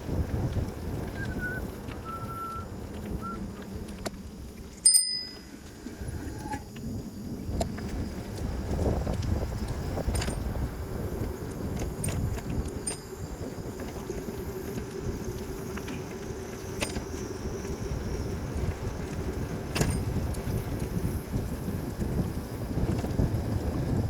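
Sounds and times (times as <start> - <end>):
road noise: 0.0 - 24.0
wind rumbling on microphone: 0.0 - 24.0
sharp clicks and rattles: 7.6 - 10.6, 11.5 - 13.2.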